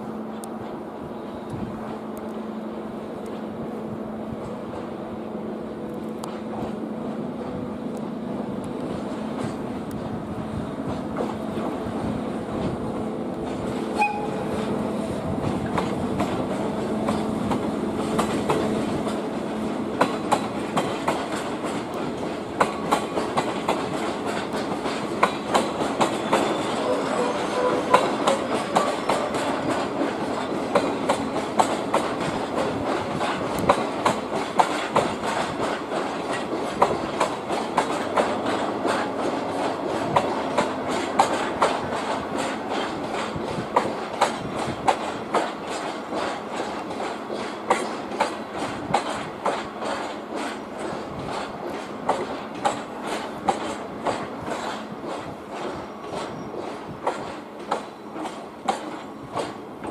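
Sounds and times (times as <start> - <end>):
locomotive humming: 0.0 - 59.9
wagon wheels clacking over rail joints: 12.6 - 59.9.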